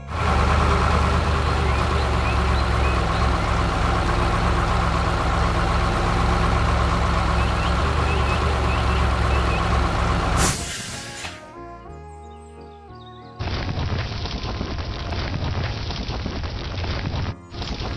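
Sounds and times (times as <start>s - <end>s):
heavy vehicle engine rumbling: 0.0s - 11.5s.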